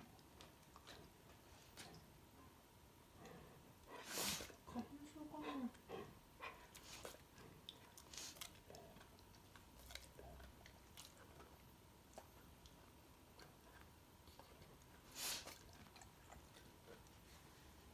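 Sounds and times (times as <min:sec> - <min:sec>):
dog sneezing: 0:04.0 - 0:04.5, 0:15.1 - 0:15.6.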